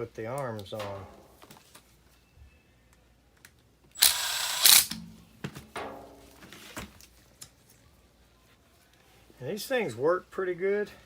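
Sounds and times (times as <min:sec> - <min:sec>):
loud harsh burst: 0:04.0 - 0:05.0.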